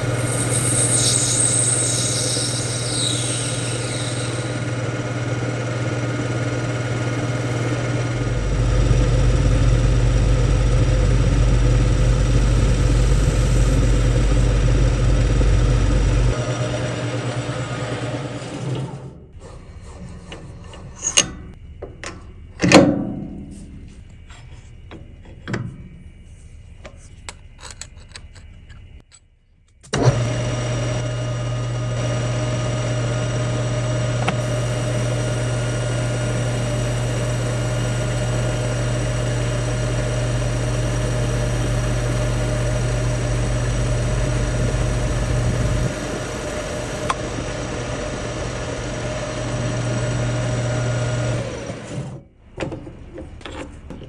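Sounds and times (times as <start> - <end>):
machine tool motor running: 0.0 - 21.5, 29.9 - 52.2
handling knocks and clicks: 52.6 - 54.0.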